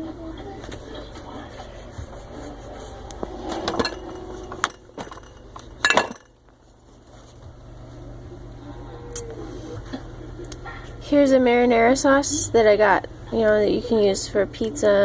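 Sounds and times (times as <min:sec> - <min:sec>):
glass jars clinking and knocking: 0:03.7 - 0:06.4.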